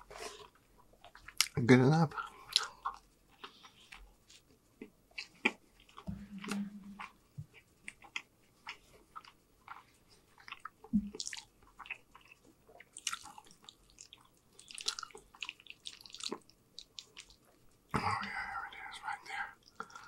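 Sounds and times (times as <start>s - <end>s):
wet chewing clicks and smacks: 1.0s - 1.6s, 2.5s - 17.7s.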